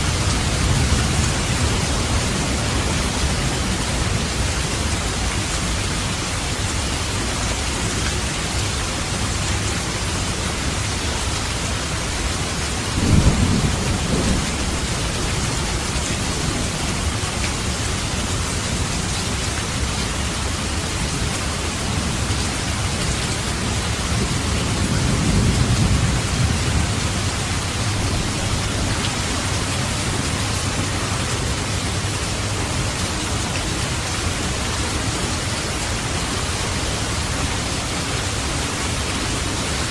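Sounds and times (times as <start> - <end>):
steady rain falling: 0.0 - 39.9
thunder rumble: 12.9 - 15.9.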